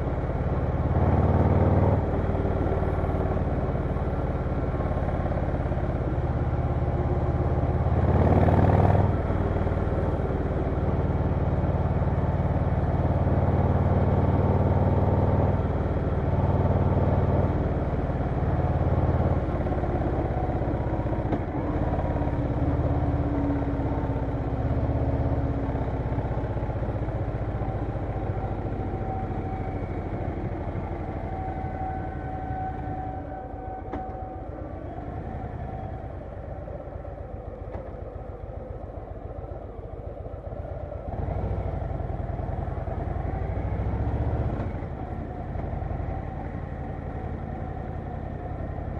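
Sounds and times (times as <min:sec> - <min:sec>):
motorcycle engine revving: 0:04.8 - 0:33.1.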